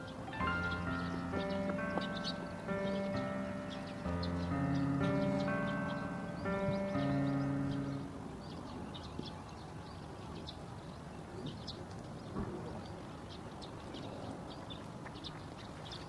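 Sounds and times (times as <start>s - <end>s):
background music: 0.0s - 8.2s
low outdoor hiss: 0.0s - 11.3s
small birds chirping: 0.0s - 16.0s.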